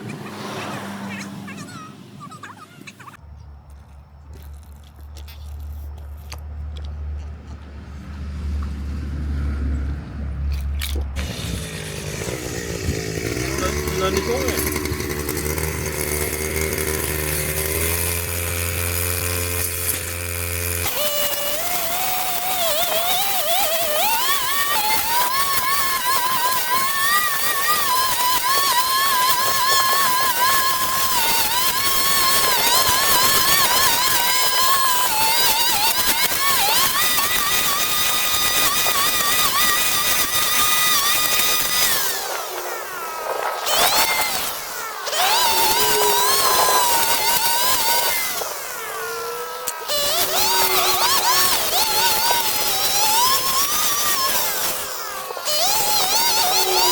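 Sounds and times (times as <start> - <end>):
garden power tool engine: 0.0 - 56.9
high whine climbing in pitch: 40.9 - 53.5.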